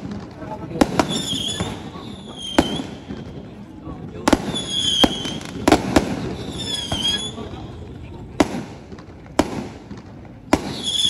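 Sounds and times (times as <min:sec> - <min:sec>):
fireworks bangs: 0:00.0 - 0:11.0
fireworks whistles: 0:00.8 - 0:03.5, 0:04.3 - 0:07.7, 0:10.5 - 0:11.0.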